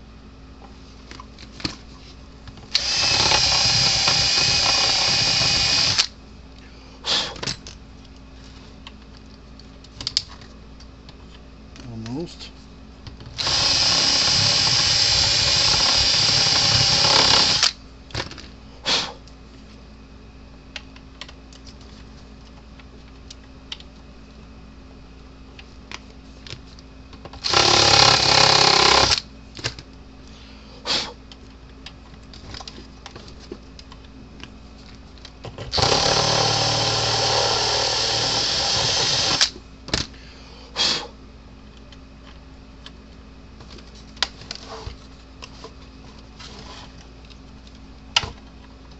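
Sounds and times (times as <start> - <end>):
power drill boring a hole: 2.8 - 6.1, 13.4 - 17.7, 27.4 - 29.2, 35.7 - 39.5.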